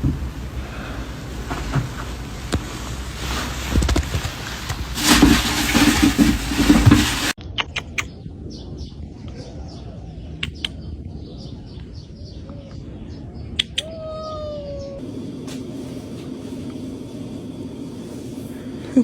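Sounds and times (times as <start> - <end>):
sharp clicks: 7.4 - 8.1
birds chirping: 7.4 - 15.0.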